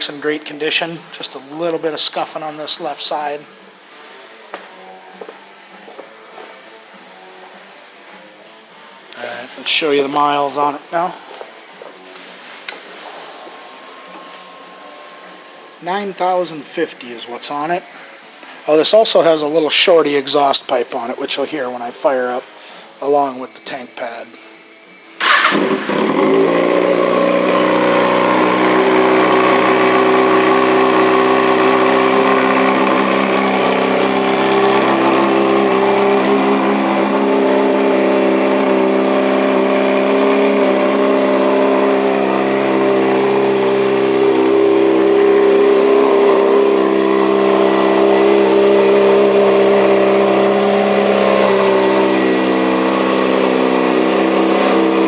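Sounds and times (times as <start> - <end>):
motorcycle engine starting and idling: 25.2 - 55.0.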